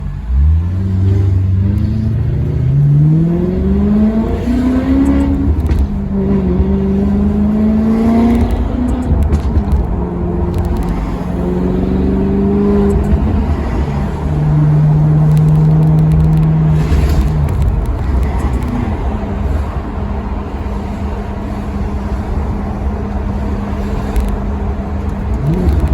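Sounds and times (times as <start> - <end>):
car engine accelerating: 0.0 - 25.9.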